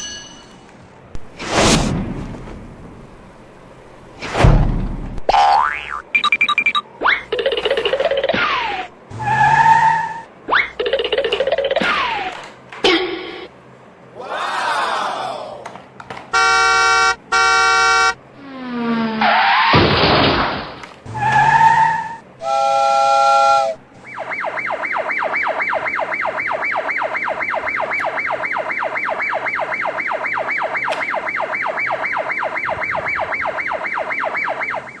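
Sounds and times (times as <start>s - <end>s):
fast warbling siren: 6.4s - 12.2s, 16.4s - 18.2s, 21.1s - 35.0s
cartoon falling glide: 7.0s - 12.4s, 18.7s - 22.8s
horn-like honks: 16.3s - 18.2s, 22.4s - 23.8s.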